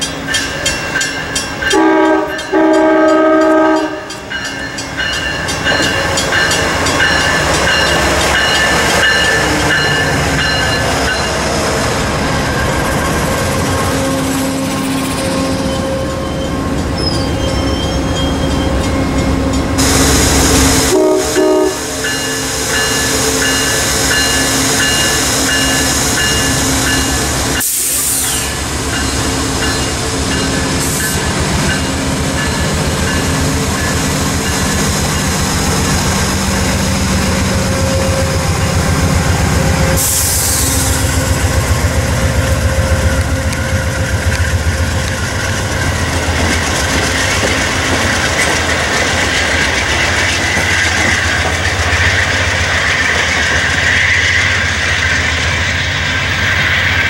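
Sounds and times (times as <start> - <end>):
train wheels clicking on rails: 0.0 - 17.4, 18.4 - 57.0
train mechanical drone: 0.0 - 57.0
train horn: 1.7 - 4.2, 19.3 - 24.8.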